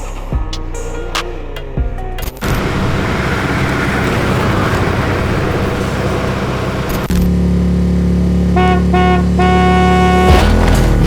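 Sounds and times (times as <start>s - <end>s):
vehicle engine humming: 1.6s - 11.0s
wind and road noise: 2.4s - 11.0s
car horn honking: 8.4s - 10.8s.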